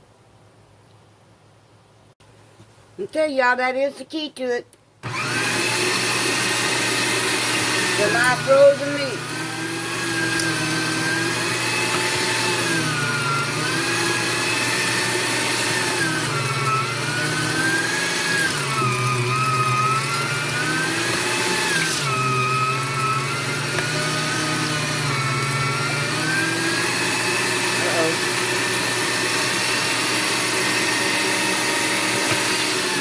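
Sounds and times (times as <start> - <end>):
electric meat grinder whine: 5.0 - 33.0.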